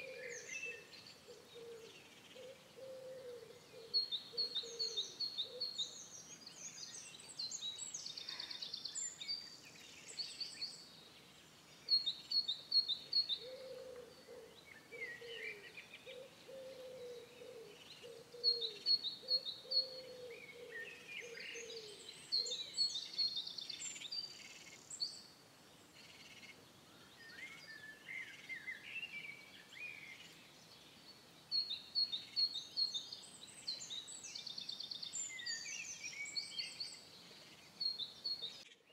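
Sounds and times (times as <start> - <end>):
songbird singing: 0.0 - 38.9
low cooing: 1.6 - 3.9, 13.4 - 18.8, 19.8 - 22.0.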